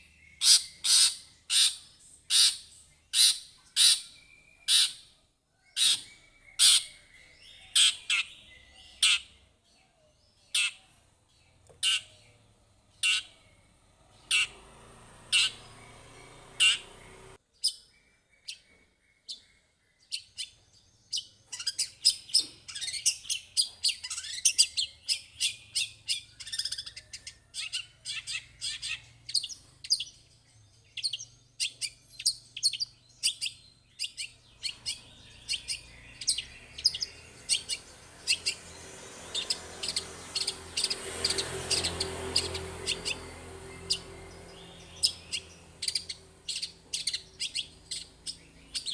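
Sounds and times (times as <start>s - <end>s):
bird singing sharp chirps: 10.3s - 48.9s.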